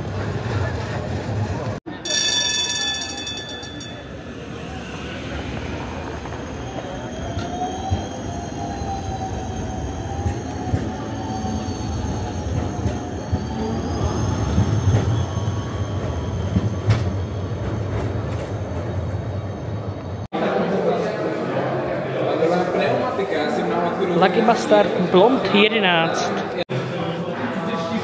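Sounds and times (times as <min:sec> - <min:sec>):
wheels squealing: 0:00.0 - 0:20.0
rail vehicle rumbling on track: 0:00.0 - 0:20.3.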